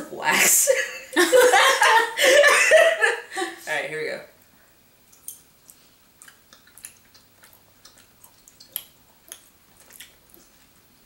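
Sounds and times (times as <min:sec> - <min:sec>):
people chewing soft candy: 0:05.0 - 0:11.0.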